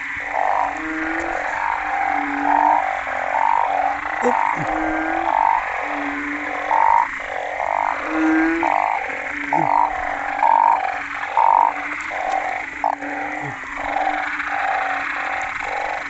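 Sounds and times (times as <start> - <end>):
drone of many frogs: 0.0 - 16.0
frogs croaking: 0.0 - 16.0.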